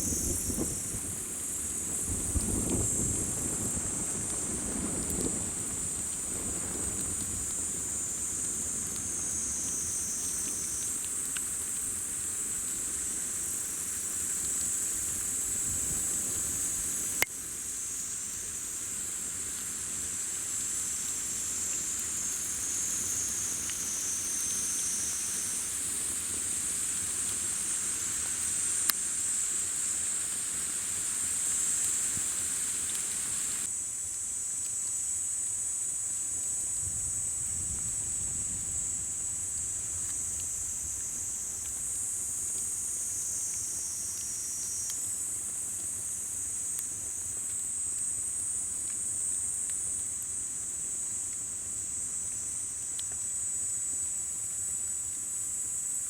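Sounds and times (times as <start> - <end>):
campfire wood popping: 0.0 - 17.5, 36.1 - 53.7
insects chorus: 0.0 - 56.0.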